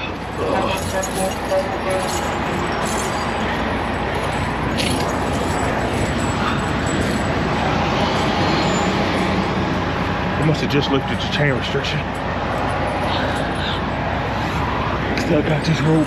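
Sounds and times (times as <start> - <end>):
diesel truck engine idling: 0.0 - 16.0
tire chains clinking: 0.0 - 16.0.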